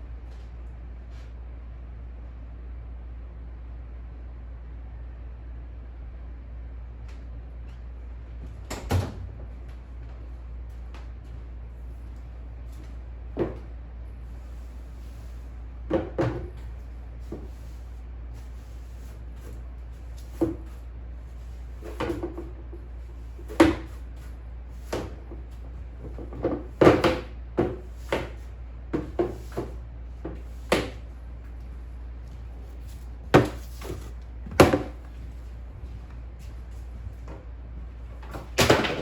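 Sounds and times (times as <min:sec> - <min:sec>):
steady low hum: 0:00.0 - 0:39.0
household things knocking and clunking: 0:24.9 - 0:31.0, 0:33.2 - 0:35.2.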